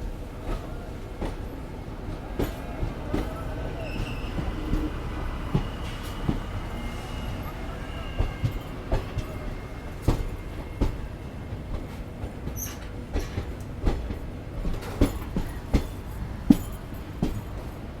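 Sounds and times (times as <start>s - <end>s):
train rumbling on track: 0.0s - 18.0s
wheels clacking over rail joints: 7.5s - 17.9s.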